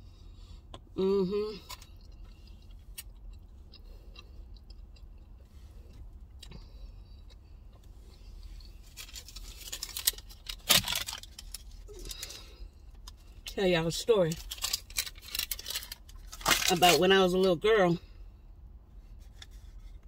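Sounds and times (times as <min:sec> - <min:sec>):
person chewing: 0:01.5 - 0:13.2
paper receipt crinkling: 0:08.8 - 0:12.5, 0:14.1 - 0:17.1.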